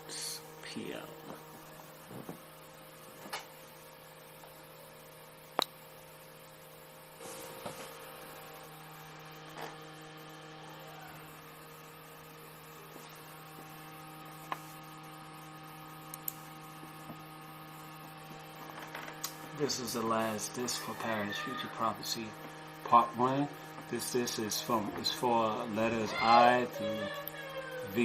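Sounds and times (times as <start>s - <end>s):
low electrical hum: 0.0s - 28.0s
sharp clicks: 16.1s - 16.4s.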